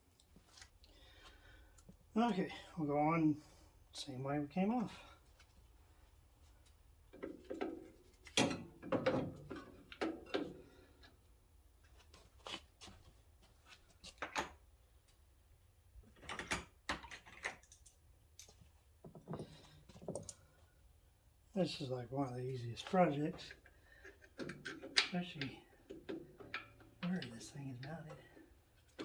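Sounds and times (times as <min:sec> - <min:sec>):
metal parts clunking and clicking: 0:23.5 - 0:28.2.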